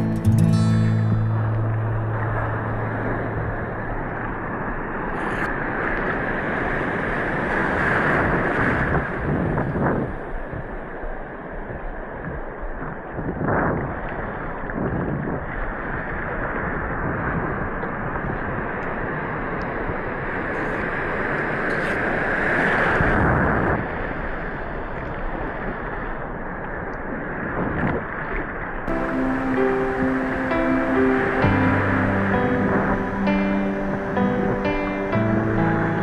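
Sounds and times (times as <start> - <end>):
music: 0.0 - 3.7, 28.9 - 36.0
ocean surf washing: 0.0 - 13.2, 28.9 - 36.0
wind buffeting microphone: 0.0 - 21.6.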